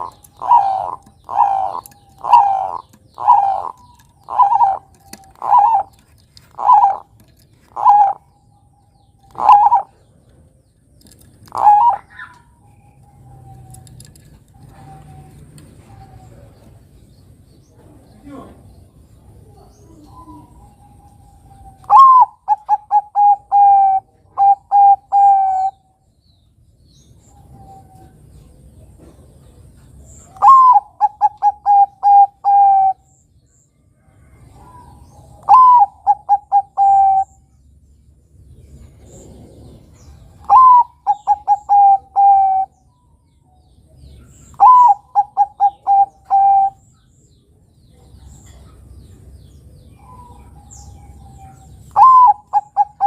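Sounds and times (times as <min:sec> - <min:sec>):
dove cooing: 0:00.0 - 0:10.4, 0:11.4 - 0:16.9, 0:19.4 - 0:25.9, 0:30.2 - 0:33.1, 0:34.3 - 0:37.5, 0:38.8 - 0:42.9, 0:44.3 - 0:46.9, 0:49.9 - 0:53.0.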